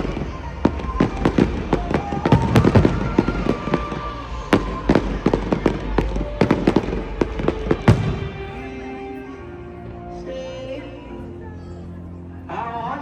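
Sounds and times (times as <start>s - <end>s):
fireworks exploding: 0.0s - 9.4s.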